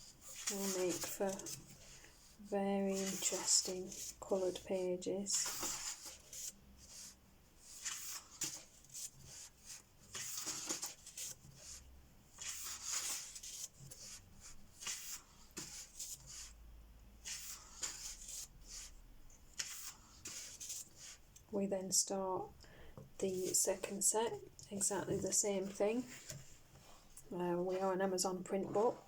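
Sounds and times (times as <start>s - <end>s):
paper pages turning: 0.2s - 2.0s, 2.9s - 4.6s, 5.3s - 6.6s, 7.6s - 11.8s, 12.4s - 16.5s, 17.2s - 18.9s.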